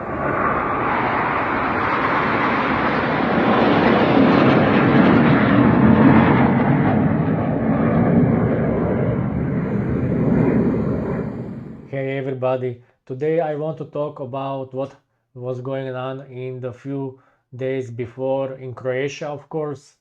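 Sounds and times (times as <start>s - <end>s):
jet aircraft passing: 0.0s - 12.0s.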